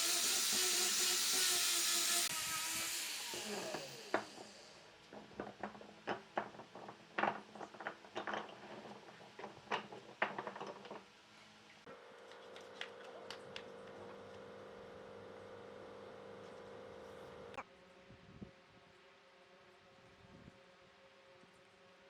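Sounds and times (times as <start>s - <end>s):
wood and tools knocking: 3.3s - 11.1s.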